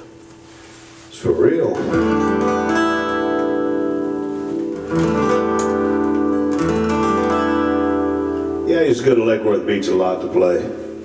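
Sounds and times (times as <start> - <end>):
acoustic guitar chords strummed: 0.0 - 11.0.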